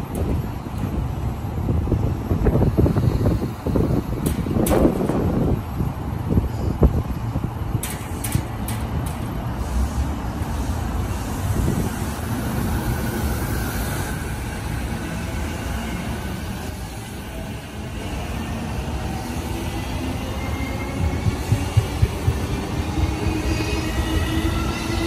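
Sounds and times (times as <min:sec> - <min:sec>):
train rolling rumble: 0:00.0 - 0:25.0
wheel thumps over rail joints: 0:07.7 - 0:09.6.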